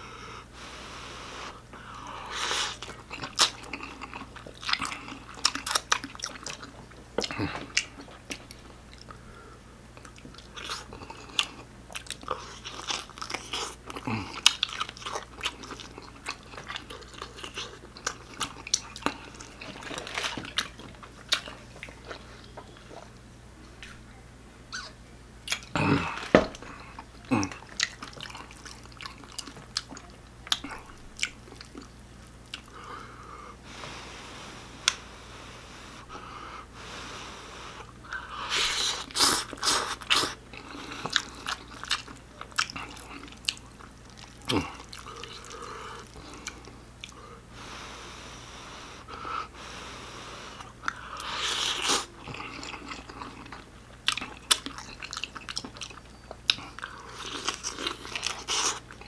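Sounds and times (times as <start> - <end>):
chewing and wet mouth clicks: 2.8 - 9.2, 25.4 - 25.7, 27.5 - 32.7, 39.5 - 47.2, 50.8 - 59.0.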